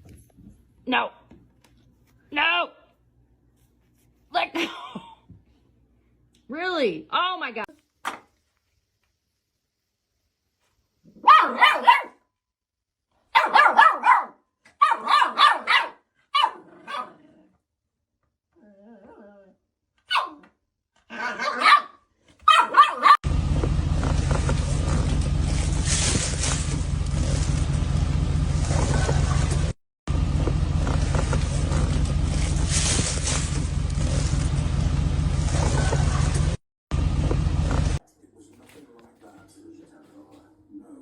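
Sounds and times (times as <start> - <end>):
dog barking: 11.2 - 12.2, 13.3 - 17.2, 20.1 - 20.5, 21.1 - 23.2
loud steady rumbling noise: 23.2 - 38.0.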